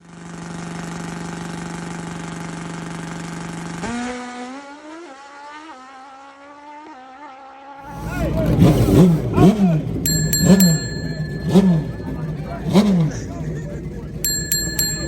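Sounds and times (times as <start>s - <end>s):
motorcycle engine revving: 7.9s - 15.0s.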